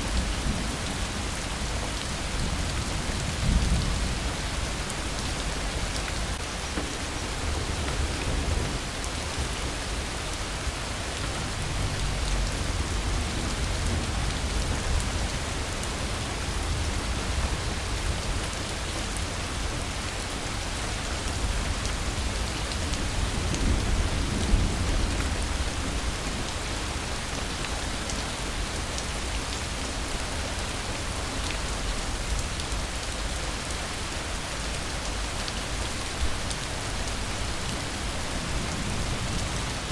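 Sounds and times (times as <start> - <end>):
heavy rain: 0.0 - 39.9
low rolling thunder: 11.3 - 18.2.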